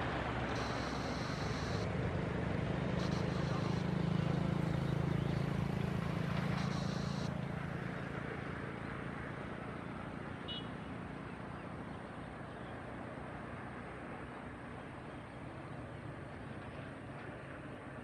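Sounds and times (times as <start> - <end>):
jet engines whining: 0.0 - 1.9, 3.0 - 7.4.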